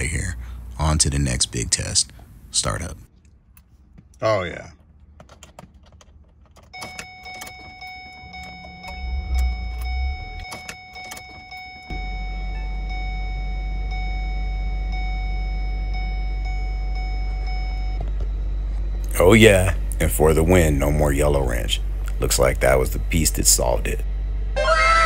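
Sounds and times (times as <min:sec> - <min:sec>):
car engine idling: 0:00.0 - 0:02.6, 0:06.0 - 0:24.7
high electronic whine: 0:07.5 - 0:25.0.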